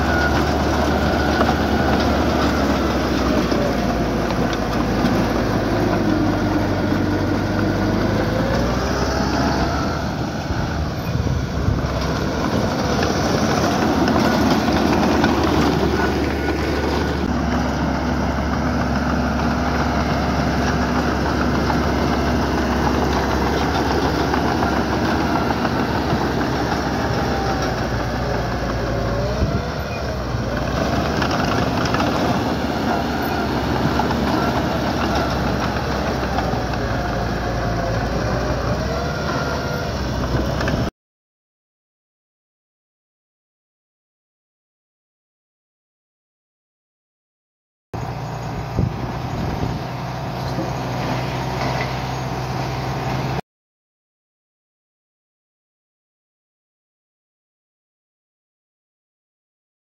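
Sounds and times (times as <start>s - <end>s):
steel tracks squealing and grinding: 0.0s - 40.8s, 48.0s - 53.4s
bulldozer diesel engine: 0.0s - 40.9s, 48.0s - 53.4s.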